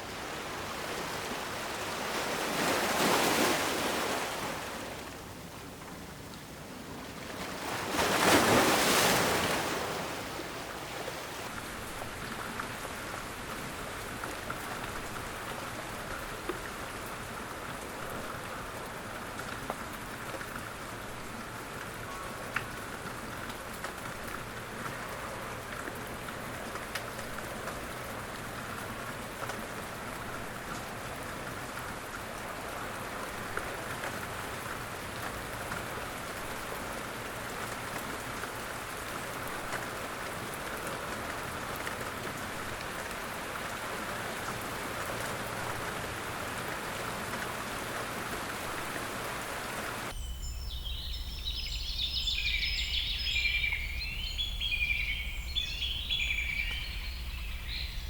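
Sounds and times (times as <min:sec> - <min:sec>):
steady rain falling: 0:00.0 - 0:58.0
birds chirping: 0:50.1 - 0:58.0.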